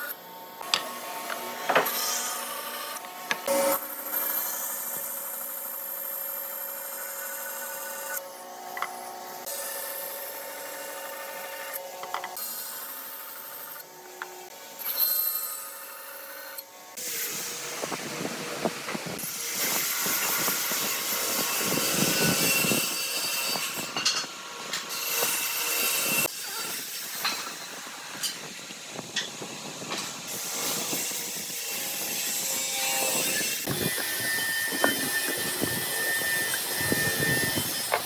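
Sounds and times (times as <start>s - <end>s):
power tools cutting wood: 0.0s - 38.0s.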